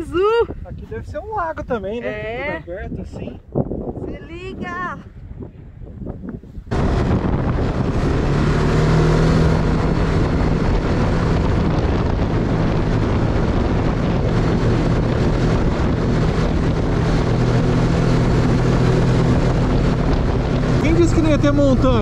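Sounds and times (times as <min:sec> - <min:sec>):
wind buffeting microphone: 0:00.0 - 0:22.0
snowmobile engine running: 0:06.7 - 0:22.0.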